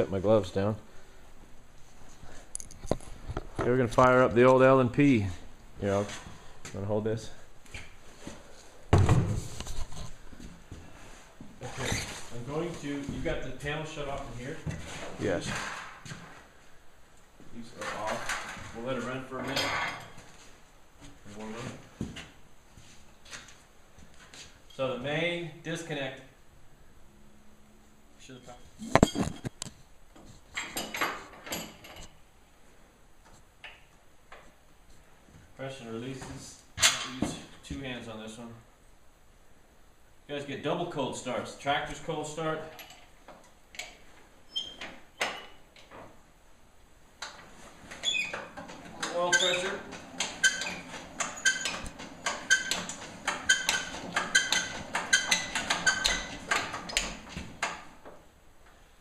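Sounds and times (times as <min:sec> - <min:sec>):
short squeak: 0:44.5 - 0:44.8.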